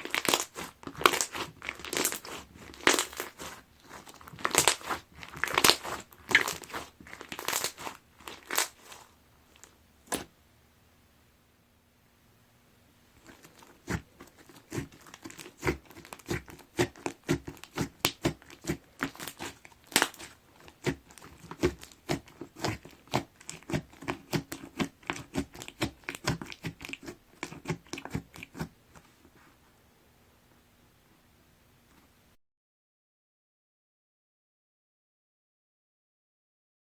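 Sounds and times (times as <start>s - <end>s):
slime crackling and popping: 0.0s - 10.3s, 13.2s - 28.7s.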